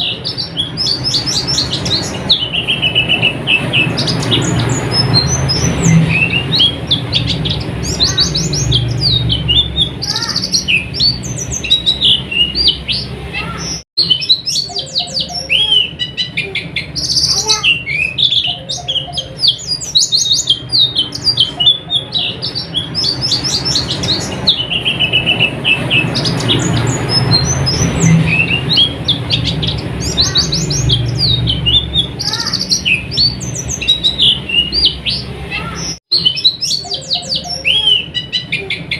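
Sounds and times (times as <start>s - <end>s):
bird twittering: 0.0s - 38.9s.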